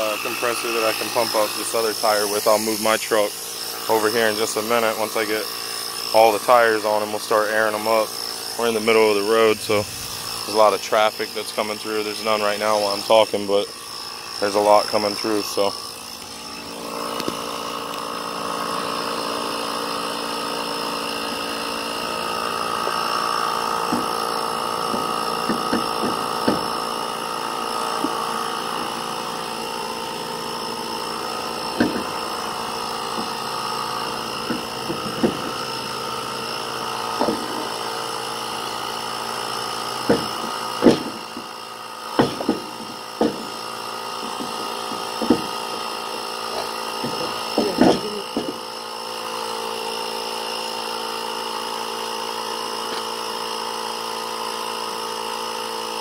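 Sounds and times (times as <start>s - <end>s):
tire inflator running: 0.0s - 56.0s
sharp knocks and clanks: 23.8s - 27.2s, 27.9s - 29.2s, 31.2s - 35.9s, 37.1s - 37.8s, 39.8s - 45.9s, 46.5s - 48.7s.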